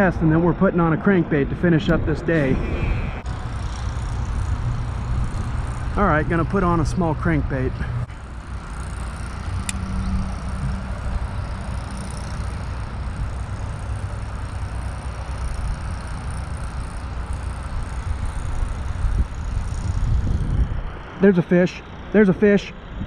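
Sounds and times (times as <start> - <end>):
wind buffeting microphone: 0.0 - 8.1, 17.8 - 21.0.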